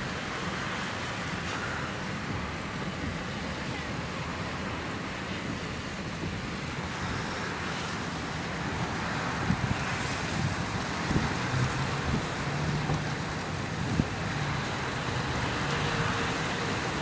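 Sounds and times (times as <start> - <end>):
surf rushing: 0.0 - 17.0
wind buffeting microphone: 5.5 - 15.6.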